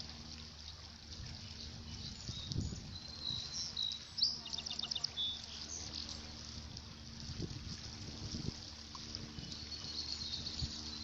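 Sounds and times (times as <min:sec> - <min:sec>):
lake water lapping at shore: 0:00.0 - 0:11.0
birds chirping and whistling: 0:01.9 - 0:05.8, 0:09.4 - 0:11.0.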